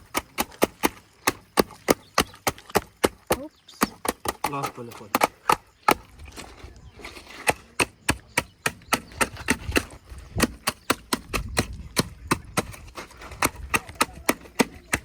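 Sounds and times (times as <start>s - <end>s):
sharp knocks on wood: 0.0s - 6.1s, 7.5s - 12.8s.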